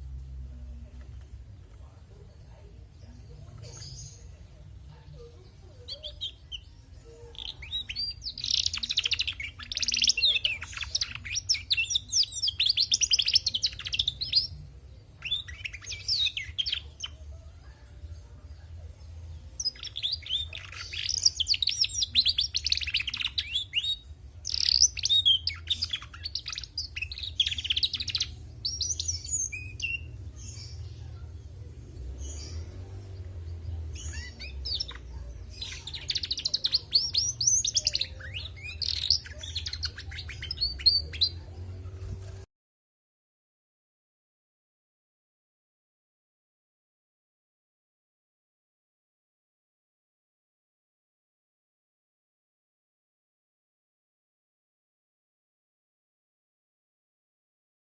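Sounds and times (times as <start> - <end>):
canary twittering: 3.5 - 18.0, 19.4 - 42.4.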